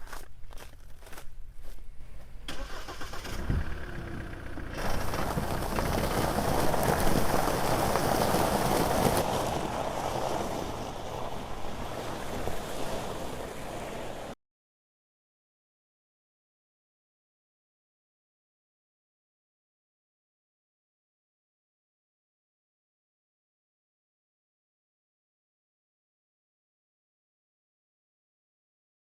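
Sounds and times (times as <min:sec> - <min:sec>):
engine starting and running: 0:02.5 - 0:08.8.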